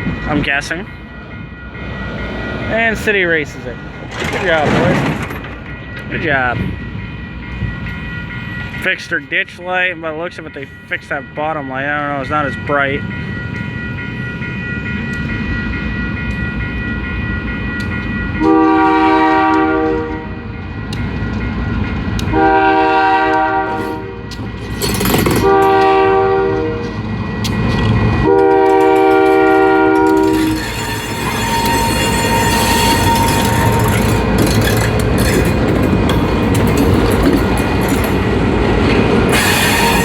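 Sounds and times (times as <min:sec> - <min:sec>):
train wheels clacking: 0:00.0 - 0:11.2, 0:14.9 - 0:26.2, 0:26.9 - 0:40.0
locomotive horn blasts: 0:18.4 - 0:20.4, 0:22.3 - 0:24.3, 0:25.4 - 0:27.0, 0:28.2 - 0:34.2, 0:39.3 - 0:40.0.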